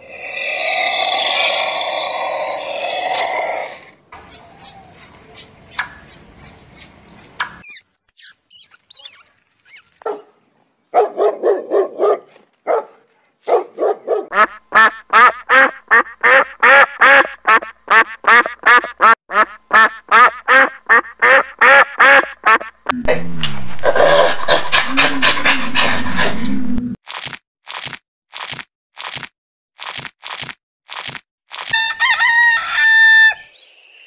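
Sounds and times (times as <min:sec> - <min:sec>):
high falling animal chirps: 0:00.2 - 0:10.0.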